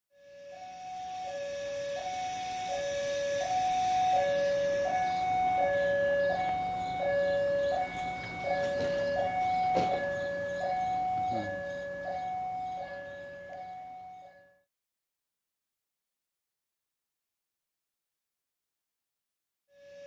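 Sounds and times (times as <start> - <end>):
two-tone electronic warning signal: 0.1 - 14.6, 19.7 - 20.0.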